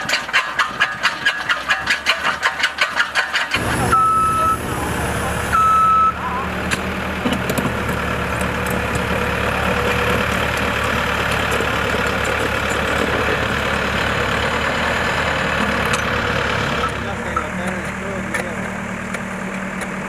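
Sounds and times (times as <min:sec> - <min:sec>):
heavy equipment engine running: 0:00.0 - 0:20.0.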